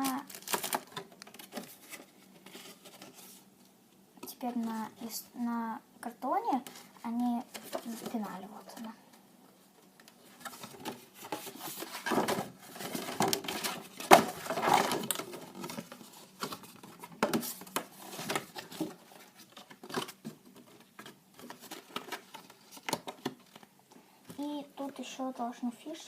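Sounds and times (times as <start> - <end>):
cardboard and wrapping crinkling: 0.0 - 3.5, 6.6 - 8.9, 10.2 - 23.7.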